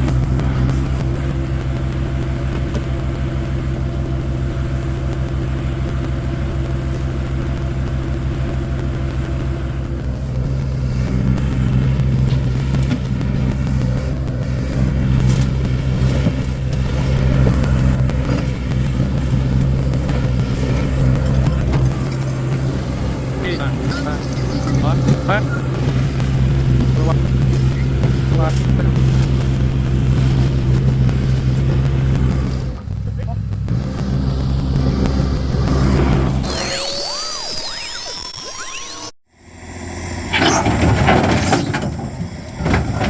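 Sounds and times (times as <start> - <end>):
engine running steadily: 0.0 - 37.3, 39.3 - 43.0
clattering noise: 40.3 - 43.0.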